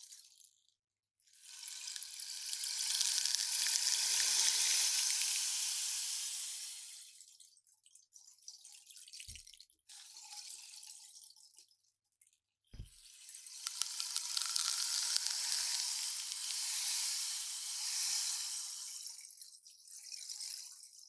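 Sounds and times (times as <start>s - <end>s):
rain stick pebbles trickling: 1.4s - 7.1s, 12.8s - 20.9s.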